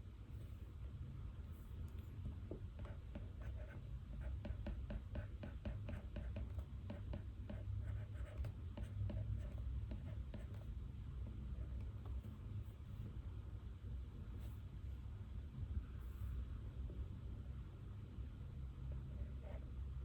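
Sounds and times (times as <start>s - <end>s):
low room hum: 0.0s - 20.0s
pen scratching on paper: 2.7s - 10.7s.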